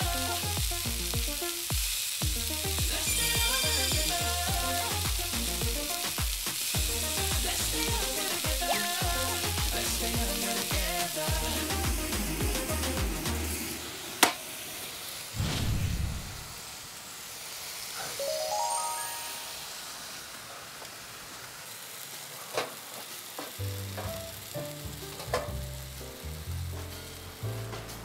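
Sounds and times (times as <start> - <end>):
meat sizzling in a wok: 0.0 - 28.0
background music: 2.3 - 6.2, 6.8 - 13.6, 18.2 - 19.6
rising run of tones: 18.2 - 20.0.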